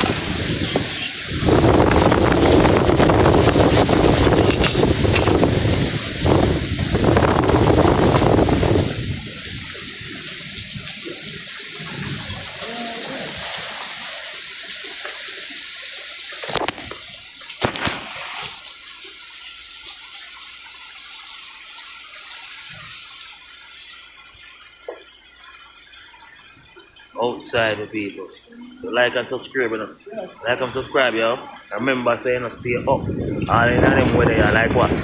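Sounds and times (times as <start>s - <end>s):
wind buffeting microphone: 0.0s - 12.6s, 31.6s - 35.0s
wind-driven rain hiss: 0.0s - 35.0s.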